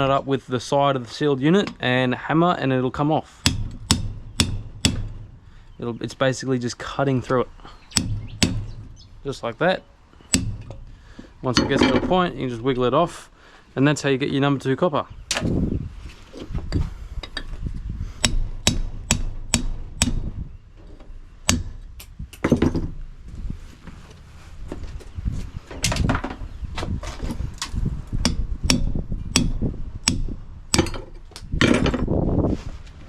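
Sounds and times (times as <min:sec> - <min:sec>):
hammer striking chisel on metal: 0:03.4 - 0:05.4, 0:07.9 - 0:09.1, 0:10.3 - 0:12.0, 0:18.2 - 0:20.3, 0:21.4 - 0:22.6, 0:28.2 - 0:31.2.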